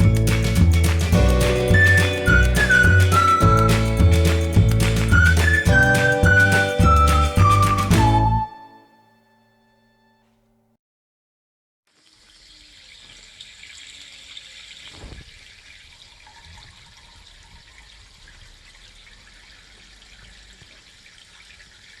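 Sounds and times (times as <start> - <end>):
water running: 0.0 - 8.3.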